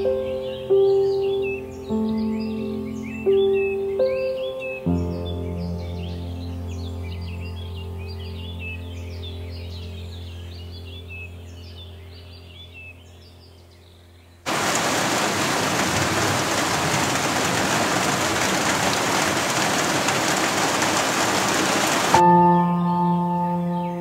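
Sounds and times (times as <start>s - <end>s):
ambient music: 0.0s - 13.2s, 22.2s - 24.0s
faint music: 0.0s - 14.4s
birds chirping: 0.0s - 24.0s
heavy rain pouring: 14.5s - 22.2s.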